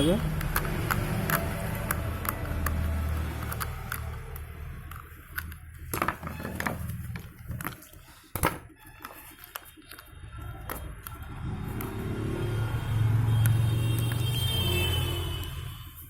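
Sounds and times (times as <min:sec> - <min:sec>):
screwdriver and plastic clicks: 0:00.4 - 0:11.2.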